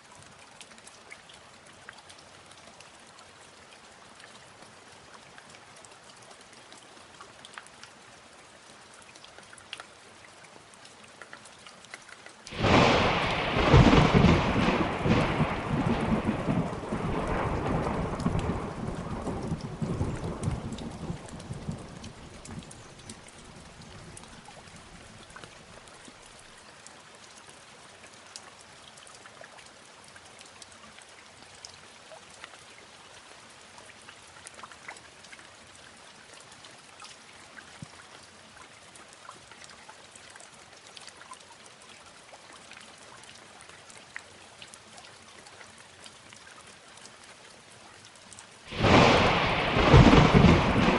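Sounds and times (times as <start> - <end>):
raindrops pattering: 0.0 - 50.9
steady rain: 0.0 - 50.9
thunder rumbling: 12.5 - 22.8, 48.7 - 50.9.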